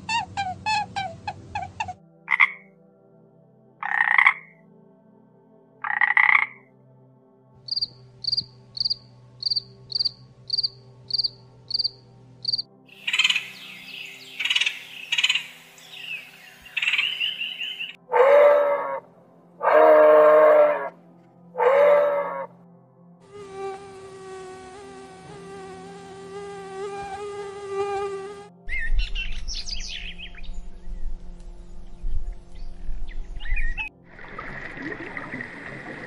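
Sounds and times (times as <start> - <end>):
frog croaking: 1.3 - 2.7, 3.8 - 4.6, 5.8 - 6.7, 7.7 - 13.6
grasshopper chirping: 7.7 - 13.6
loud low animal call: 21.6 - 22.5.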